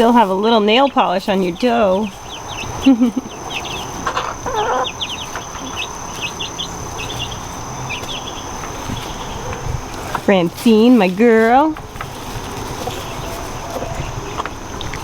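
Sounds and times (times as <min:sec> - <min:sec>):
hen calling: 0:00.0 - 0:11.8
chicks peeping: 0:00.0 - 0:15.0.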